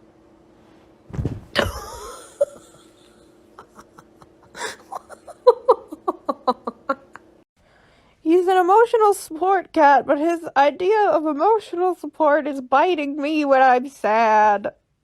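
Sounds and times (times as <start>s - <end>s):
heavy thud: 1.1s - 1.9s
person laughing: 1.6s - 7.4s.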